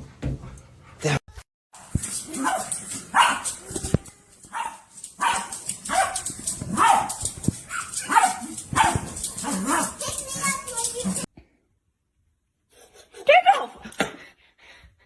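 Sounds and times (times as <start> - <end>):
dog barking: 2.2 - 3.6, 4.5 - 10.2.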